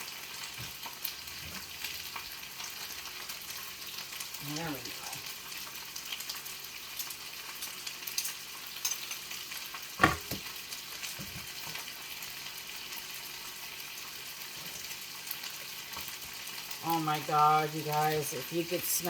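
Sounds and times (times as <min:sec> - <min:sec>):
ginger sizzling in oil: 0:00.0 - 0:19.0
sharp knock: 0:10.0 - 0:10.4.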